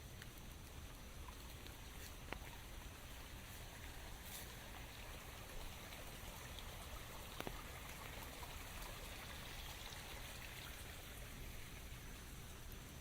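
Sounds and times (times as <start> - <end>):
raindrops ticking: 0.0 - 4.0
rain falling in forest: 0.0 - 13.0.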